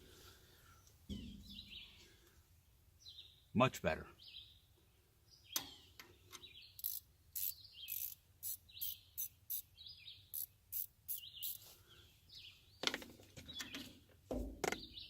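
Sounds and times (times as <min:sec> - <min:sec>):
birds chirping: 0:00.7 - 0:02.3, 0:03.0 - 0:14.0
wrench clicking: 0:06.8 - 0:09.6, 0:10.4 - 0:11.6.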